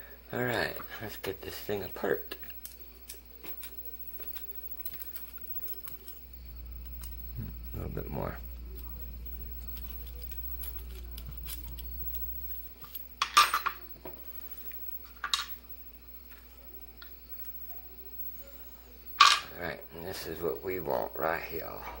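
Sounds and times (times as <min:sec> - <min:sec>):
low hum: 0:03.7 - 0:22.0
metal padlock parts clinking: 0:08.7 - 0:13.9.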